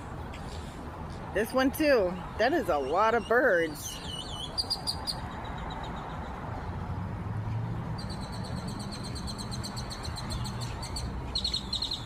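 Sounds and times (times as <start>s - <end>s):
grackles chirping: 8.0s - 12.0s.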